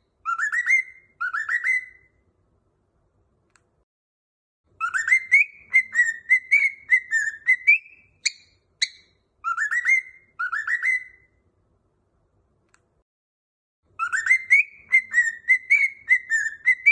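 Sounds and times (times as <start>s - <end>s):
cockatiel whistling: 0.2s - 2.2s, 4.8s - 11.4s, 14.0s - 16.9s.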